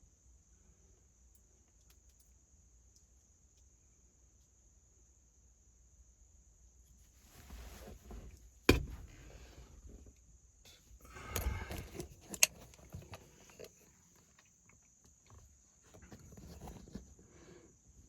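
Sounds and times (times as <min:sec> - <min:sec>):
rustling: 0:07.1 - 0:10.0
sharp knock: 0:08.7 - 0:09.0.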